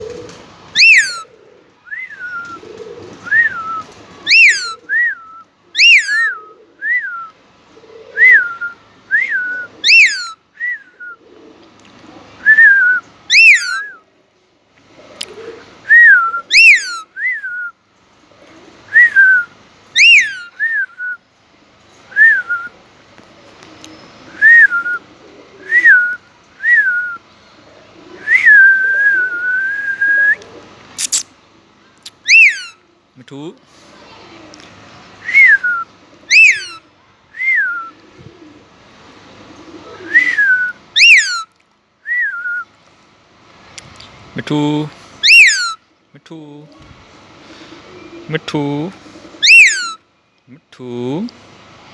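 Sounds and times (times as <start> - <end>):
parakeet whistling: 0.8 - 1.2, 3.3 - 4.8, 5.8 - 6.4, 9.3 - 10.4, 12.6 - 13.9, 16.0 - 17.0, 20.0 - 20.5, 31.0 - 31.3, 32.1 - 32.8, 35.3 - 36.8, 40.1 - 41.4, 45.2 - 45.8, 49.4 - 50.0.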